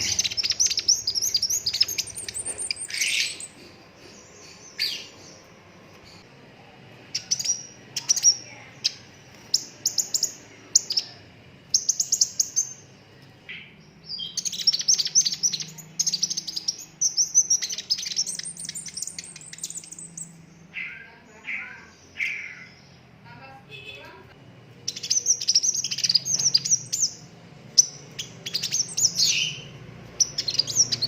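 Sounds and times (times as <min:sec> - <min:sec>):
bird trilling: 0:00.0 - 0:05.4, 0:13.5 - 0:23.1, 0:24.9 - 0:31.0
bird chirping: 0:00.0 - 0:06.3, 0:07.0 - 0:31.0.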